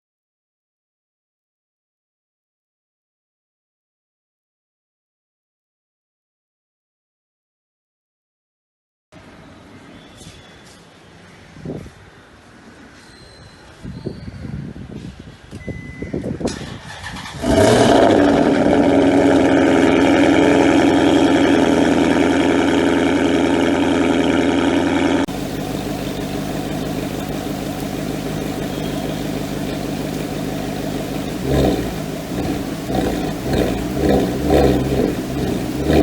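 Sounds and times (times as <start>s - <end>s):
car engine starting and idling: 25.3s - 36.0s
engine revving blip: 25.3s - 36.0s.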